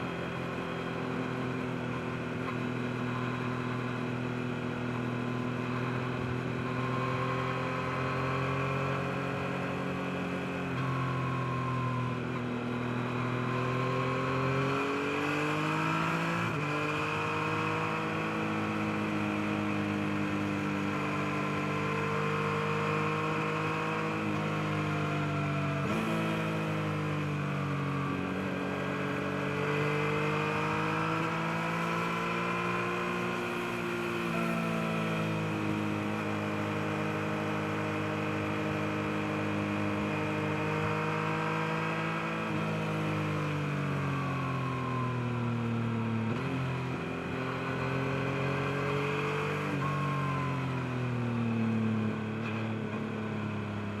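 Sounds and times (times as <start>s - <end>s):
motorcycle engine revving: 12.6s - 44.0s.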